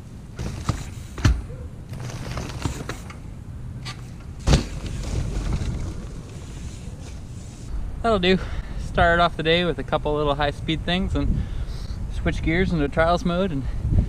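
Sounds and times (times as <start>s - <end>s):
bike clicks and rattles: 0.3s - 7.7s
mountain bike landing impacts: 0.3s - 7.7s.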